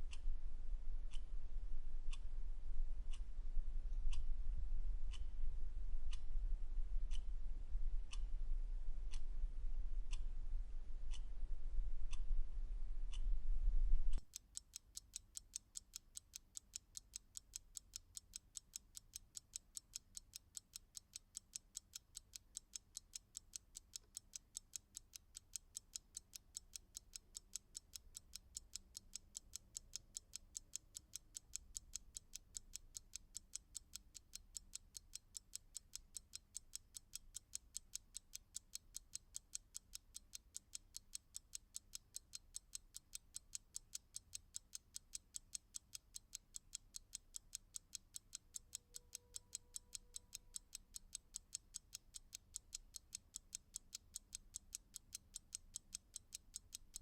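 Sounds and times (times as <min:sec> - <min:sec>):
clock ticking: 0:05.1 - 0:05.3, 0:11.1 - 0:11.3, 0:14.1 - 0:57.0.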